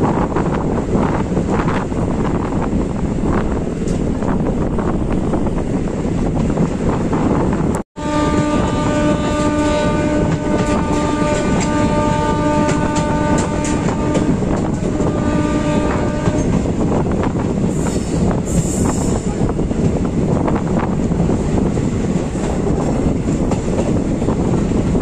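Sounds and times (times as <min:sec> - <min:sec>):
train rumble: 0:00.0 - 0:25.0
train horn: 0:08.0 - 0:16.8
wheels clacking over rail joints: 0:10.2 - 0:15.2.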